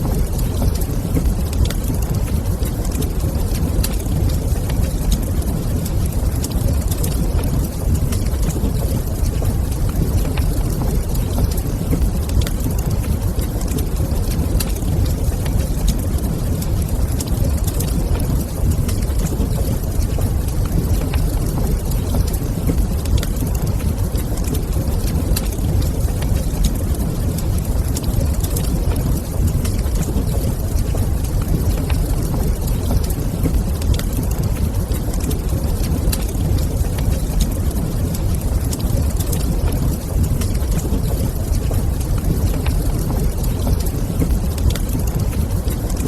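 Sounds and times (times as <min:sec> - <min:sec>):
fire crackling and popping: 0:00.0 - 0:46.0
fire rumbling: 0:00.0 - 0:46.0.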